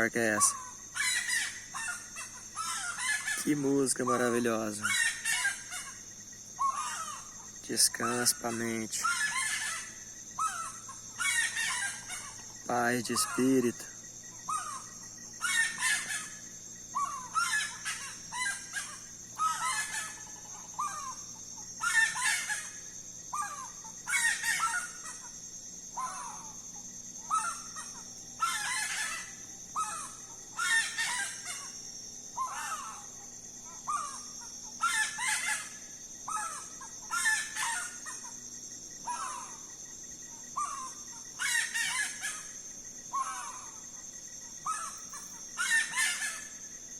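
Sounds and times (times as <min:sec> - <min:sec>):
rail bird calling harshly: 0:00.0 - 0:06.0, 0:06.6 - 0:13.8, 0:14.5 - 0:25.4, 0:27.2 - 0:31.8, 0:32.4 - 0:33.1, 0:33.7 - 0:38.3, 0:40.6 - 0:43.8, 0:44.6 - 0:46.6.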